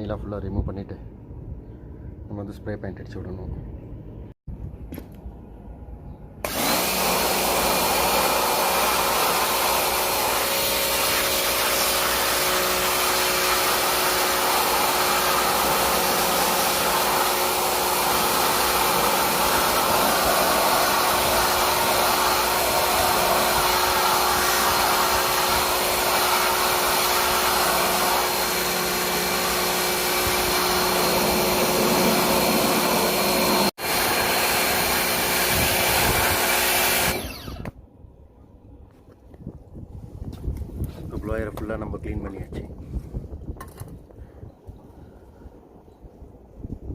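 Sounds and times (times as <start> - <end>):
electric air blower running: 6.4 - 37.8.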